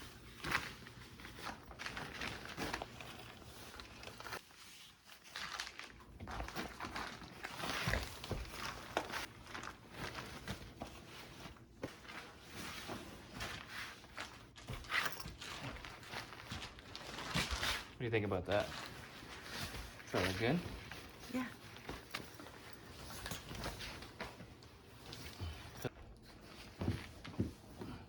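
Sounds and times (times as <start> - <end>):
rustling and crinkling: 0.0 - 28.0.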